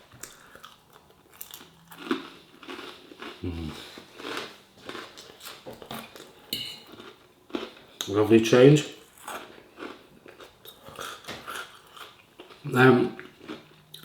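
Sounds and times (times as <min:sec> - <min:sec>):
crunchy food chewing: 0:00.1 - 0:08.1, 0:08.9 - 0:14.0
mouth sounds: 0:03.4 - 0:04.0.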